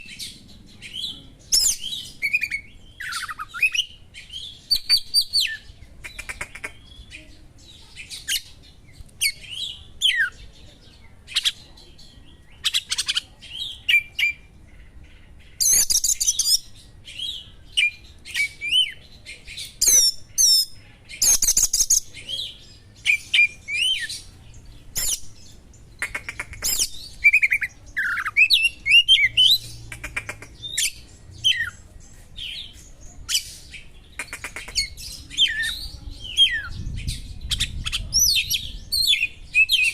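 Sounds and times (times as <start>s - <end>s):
songbird singing whistles and trills: 0.0s - 5.7s, 15.6s - 19.0s, 19.6s - 24.3s, 26.7s - 29.7s.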